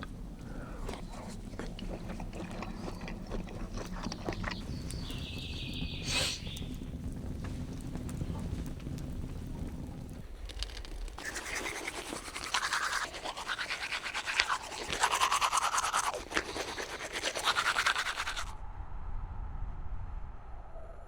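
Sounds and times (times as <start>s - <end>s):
toothbrush scrubbing teeth: 0.0s - 5.3s, 11.2s - 18.5s.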